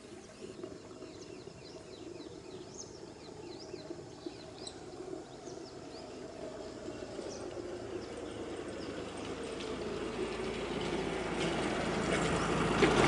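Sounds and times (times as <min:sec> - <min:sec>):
small birds chirping: 0:00.0 - 0:10.0
low background hum: 0:00.0 - 0:12.8.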